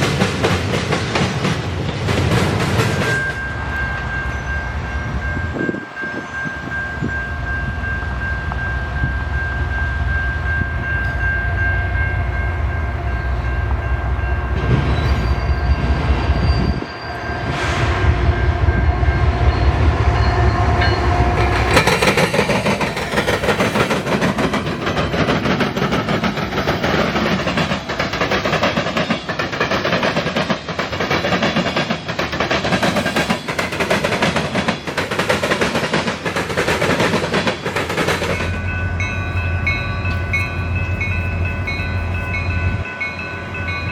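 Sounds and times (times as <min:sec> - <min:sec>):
train wheels clattering: 0:00.0 - 0:04.4, 0:14.5 - 0:43.9.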